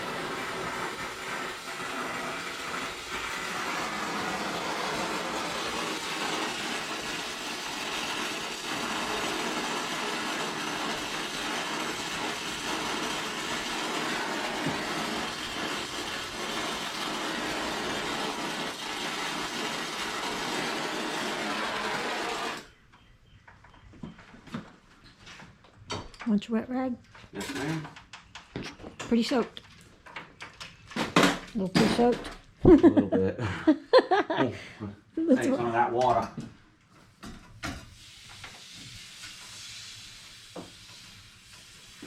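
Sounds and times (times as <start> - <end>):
machine running noise: 0.0 - 22.7.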